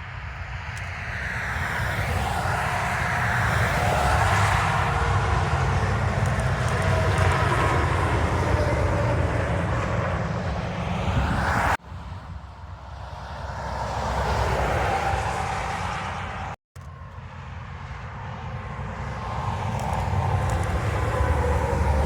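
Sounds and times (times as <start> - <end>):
trucks passing on highway: 0.0 - 22.0.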